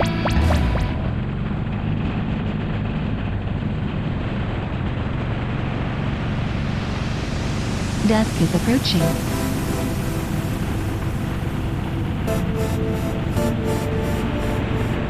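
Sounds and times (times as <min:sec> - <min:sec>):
motorcycle engine running: 0:00.0 - 0:07.8.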